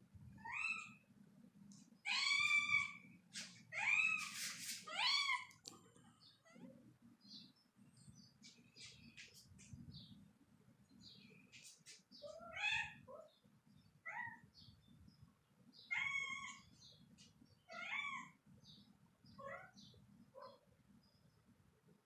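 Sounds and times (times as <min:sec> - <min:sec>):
cat meowing: 0:15.9 - 0:16.6.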